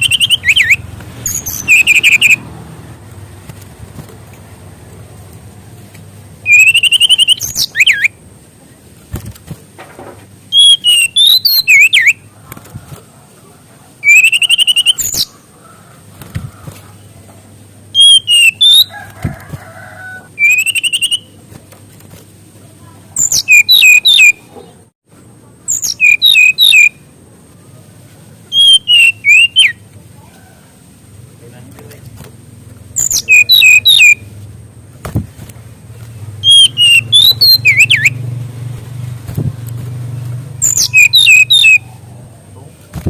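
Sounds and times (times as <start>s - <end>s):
songbird warbling whistles: 0.0s - 2.4s, 6.5s - 8.2s, 10.5s - 12.2s, 14.0s - 15.3s, 18.0s - 18.9s, 20.4s - 21.4s, 23.2s - 24.4s, 25.7s - 27.0s, 28.5s - 29.8s, 33.0s - 34.2s, 36.4s - 38.2s, 40.6s - 41.9s.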